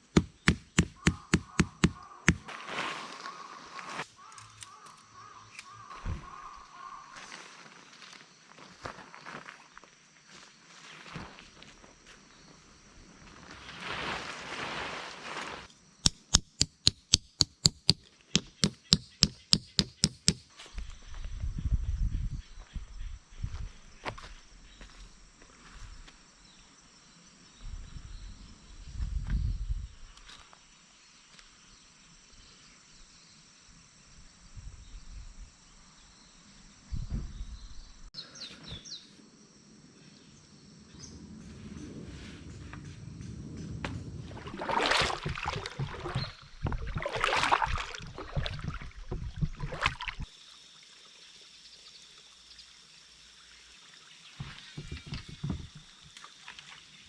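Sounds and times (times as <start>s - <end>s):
insects trilling: 0.0s - 29.0s, 29.8s - 57.0s
rustling: 2.4s - 4.1s, 13.2s - 15.7s
sharp ringing knocks: 16.1s - 20.5s.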